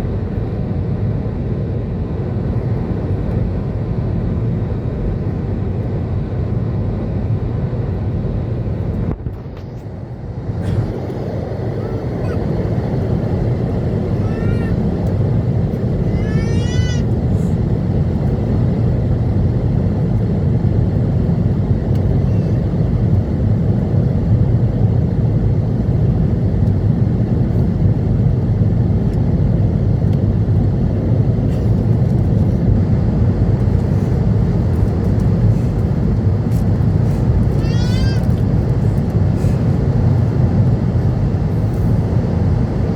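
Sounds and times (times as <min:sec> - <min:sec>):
airplane cabin engine roar: 0:00.0 - 0:42.9.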